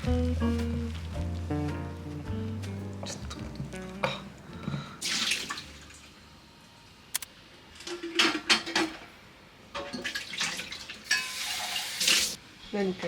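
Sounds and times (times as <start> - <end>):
dishes and utensils clinking: 4.0 - 4.3, 11.1 - 11.6.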